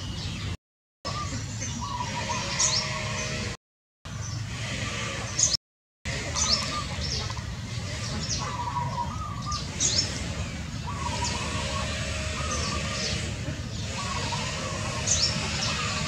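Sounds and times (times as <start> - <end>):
low wavering bird call: 10.8 - 13.3.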